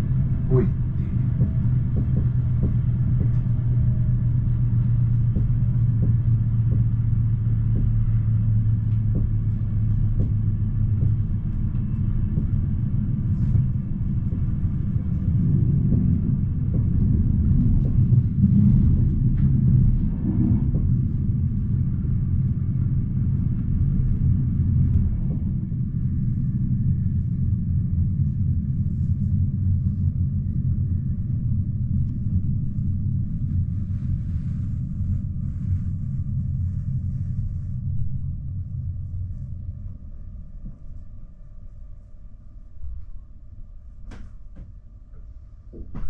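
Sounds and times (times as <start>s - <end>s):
train wheels rumbling: 0.0s - 38.7s
low hum: 0.0s - 46.0s.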